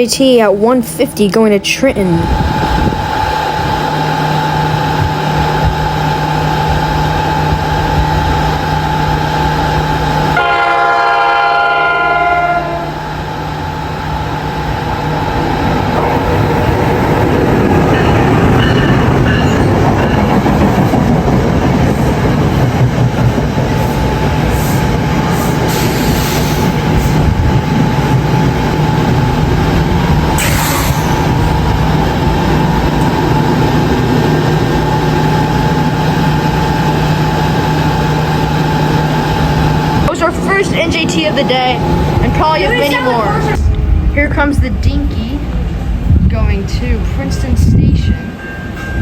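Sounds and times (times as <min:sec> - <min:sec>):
train horn: 0:10.4 - 0:13.0
train wheels clattering on rails: 0:14.5 - 0:42.5.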